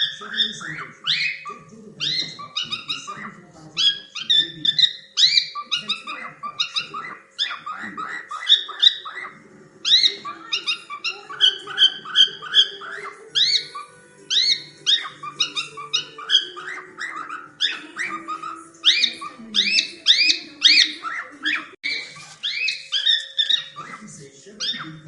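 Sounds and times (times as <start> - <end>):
cockatiels chirping: 0.0 - 25.0.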